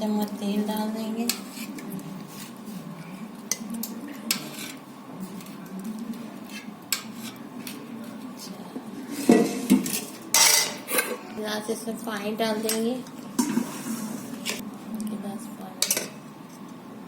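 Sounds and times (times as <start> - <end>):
metal spoon clinking on pot: 15.8 - 16.2.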